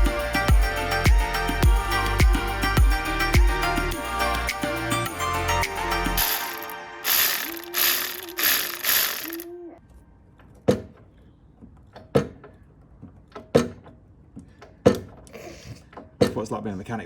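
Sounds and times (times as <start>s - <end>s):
hand tool rasping: 7.1s - 9.4s.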